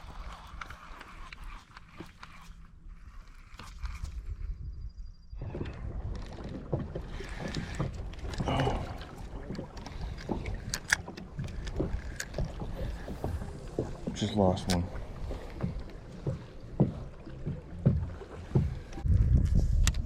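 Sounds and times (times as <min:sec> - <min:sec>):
wind rumble on microphone: 0:03.0 - 0:15.8, 0:17.8 - 0:20.0
fishing gear knocks and clicks: 0:05.5 - 0:20.0.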